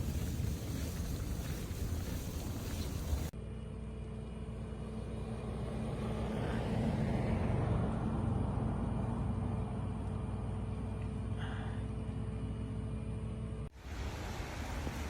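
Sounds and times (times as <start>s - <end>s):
windy hiss: 0.0s - 3.3s, 13.7s - 15.0s
vehicle engine rumble: 0.0s - 13.7s.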